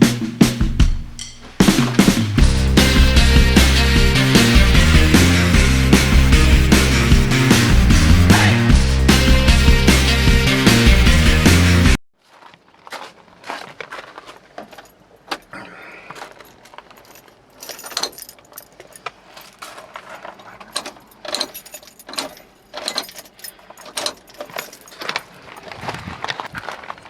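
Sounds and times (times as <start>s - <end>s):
light metallic clinks and rattles: 16.4s - 25.7s.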